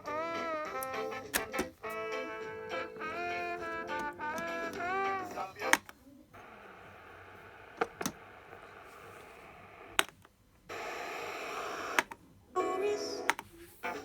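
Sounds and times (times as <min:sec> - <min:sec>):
radio static hiss: 0:03.1 - 0:10.1, 0:10.7 - 0:12.4
sharp clicks: 0:11.9 - 0:12.2.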